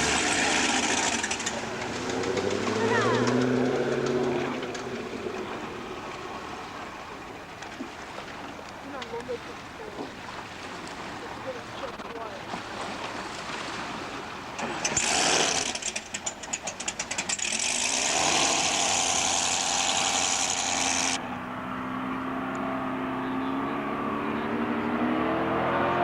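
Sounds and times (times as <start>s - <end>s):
power boat engine roaring: 0.0s - 26.0s.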